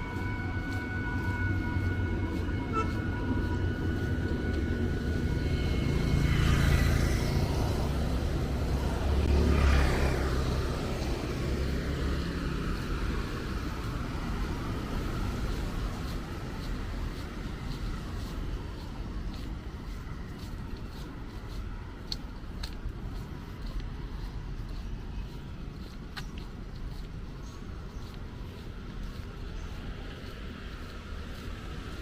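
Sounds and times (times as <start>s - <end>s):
traffic rumble: 0.0s - 32.0s
tyres hissing on wet road: 5.7s - 19.3s.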